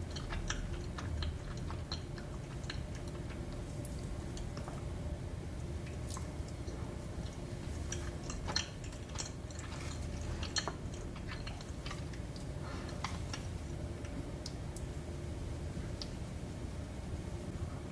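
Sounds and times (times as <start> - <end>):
chewing with mouth clicks: 0.0 - 4.9, 5.6 - 14.9
steady low hum: 0.0 - 17.9.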